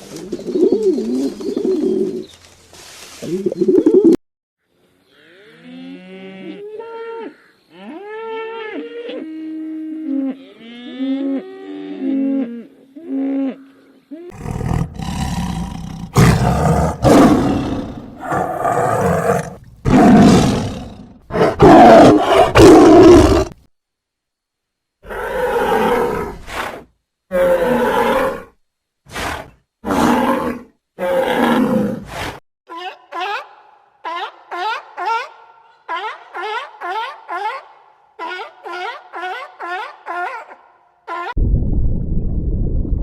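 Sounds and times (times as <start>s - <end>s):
rough animal roars: 14.3s - 23.6s, 25.0s - 32.4s.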